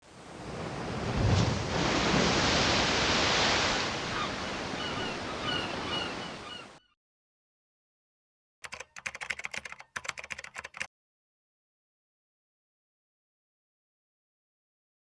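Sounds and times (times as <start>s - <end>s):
sea waves washing in: 0.0s - 6.5s.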